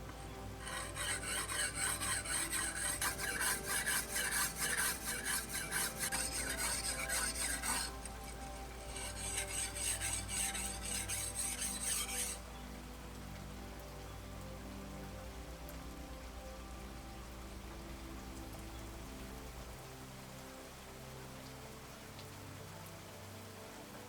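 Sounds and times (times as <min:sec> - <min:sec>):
metal blade rasping on abrasive: 0:00.0 - 0:12.4.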